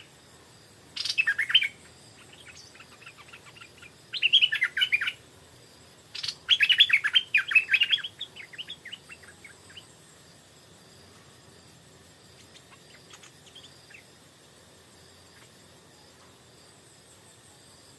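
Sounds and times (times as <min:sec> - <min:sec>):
bird chattering song: 0:00.9 - 0:05.2, 0:06.1 - 0:10.0, 0:12.3 - 0:14.1.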